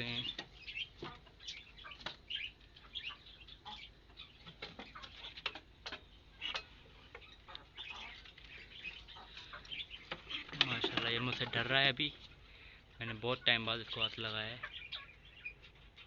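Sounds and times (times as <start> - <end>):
bird ticks: 0.0 - 12.4.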